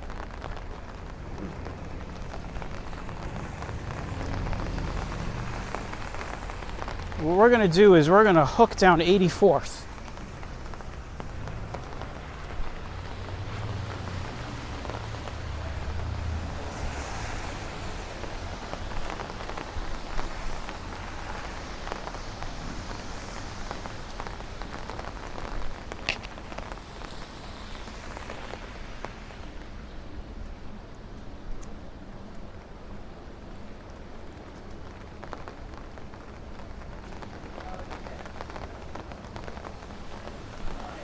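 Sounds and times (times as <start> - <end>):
steady rain falling: 0.0 - 41.0
low rumble: 0.9 - 7.3.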